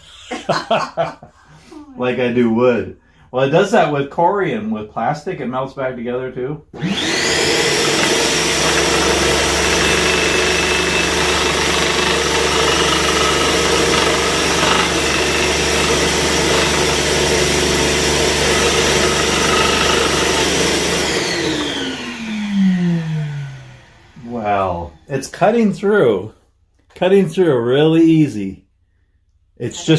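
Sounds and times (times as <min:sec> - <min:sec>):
scroll saw cutting: 0:06.8 - 0:24.8
motor winding down: 0:06.8 - 0:25.1.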